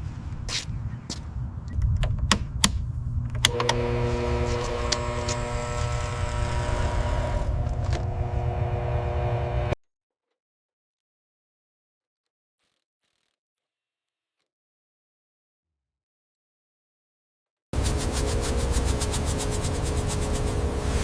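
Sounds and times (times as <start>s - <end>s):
low rumble: 1.4s - 9.8s
steady mechanical hum: 2.7s - 9.8s, 17.8s - 21.0s.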